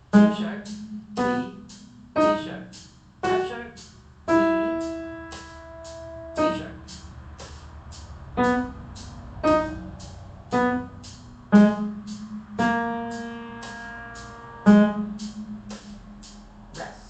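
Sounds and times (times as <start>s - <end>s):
piano single notes: 0.0s - 6.9s, 8.4s - 16.9s.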